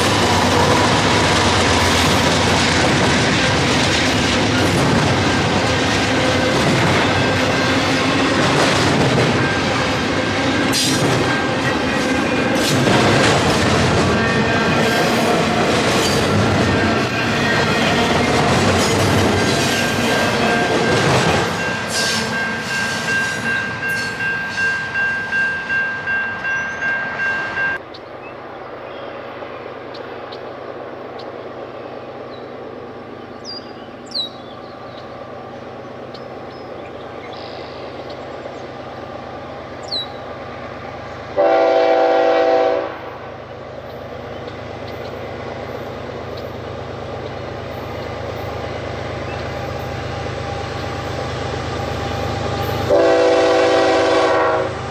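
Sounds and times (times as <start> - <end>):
locomotive horn blast: 41.4 - 43.2, 52.6 - 54.9.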